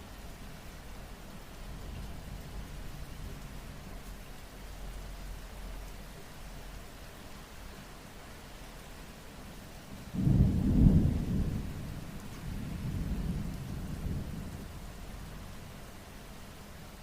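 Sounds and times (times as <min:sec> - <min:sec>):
steady rain: 0:00.0 - 0:17.0
thunder rumbling: 0:10.1 - 0:15.3.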